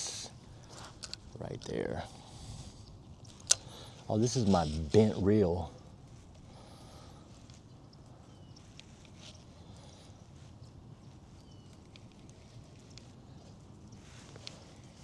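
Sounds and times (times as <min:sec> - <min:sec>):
light clicks: 0:00.6 - 0:01.8, 0:02.8 - 0:04.5
faint bird calls: 0:02.0 - 0:15.0.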